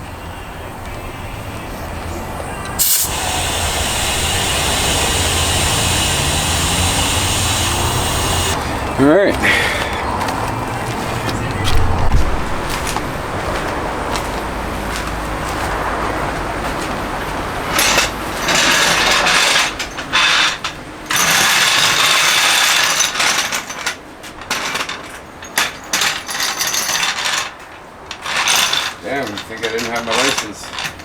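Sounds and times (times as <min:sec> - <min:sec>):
car jack clicking and rattling: 0:02.7 - 0:10.1, 0:17.7 - 0:31.0
loud bursts: 0:02.8 - 0:08.6
steady low rumble: 0:09.9 - 0:16.7
tools being handled: 0:17.7 - 0:31.0.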